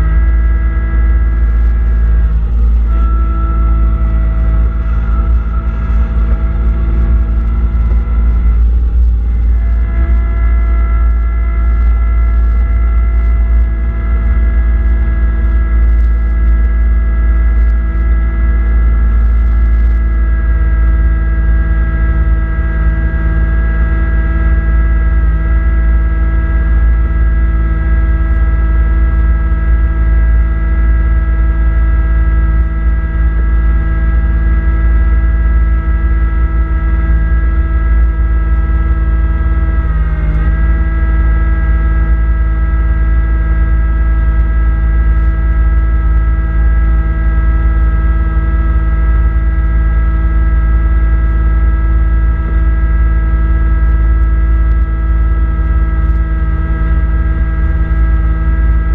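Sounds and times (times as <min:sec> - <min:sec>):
tractor diesel engine rumble: 0:00.0 - 0:20.2
steady whine: 0:00.0 - 0:58.9.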